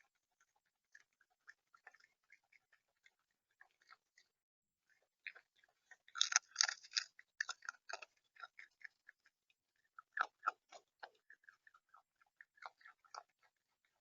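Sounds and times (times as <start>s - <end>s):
bird pecking and cracking seed: 5.9s - 9.0s.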